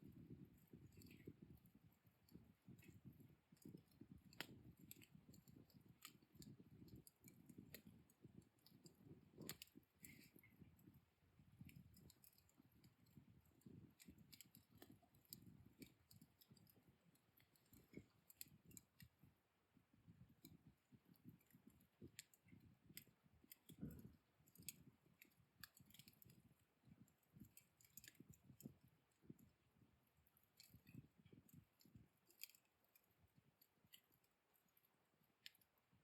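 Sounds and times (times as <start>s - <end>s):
wood fire crackling: 2.2s - 11.0s.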